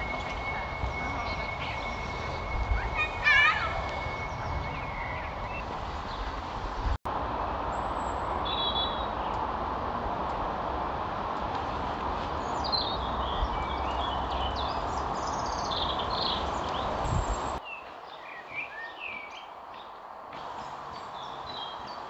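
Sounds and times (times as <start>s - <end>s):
small birds chirping and trilling: 0.0s - 6.4s, 12.4s - 20.0s, 20.6s - 22.0s.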